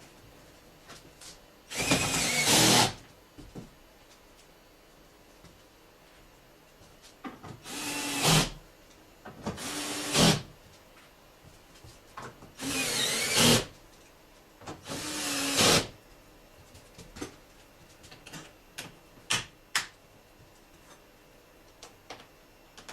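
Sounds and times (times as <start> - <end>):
power tool bursts: 1.7 - 3.0, 9.6 - 10.4, 12.6 - 13.7.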